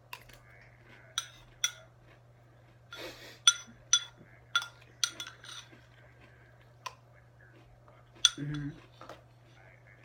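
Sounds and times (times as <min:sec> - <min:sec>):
low electrical hum: 0:00.0 - 0:10.0
spoon clinking against bowl: 0:01.2 - 0:01.9, 0:03.4 - 0:05.7, 0:08.2 - 0:08.7
spoon scraping bowl: 0:03.5 - 0:06.0.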